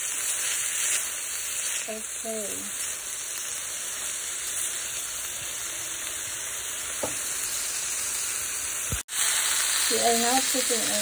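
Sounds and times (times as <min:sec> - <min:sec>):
utensil stirring in a pan: 0:00.0 - 0:07.3
food sizzling in a pan: 0:00.0 - 0:11.0.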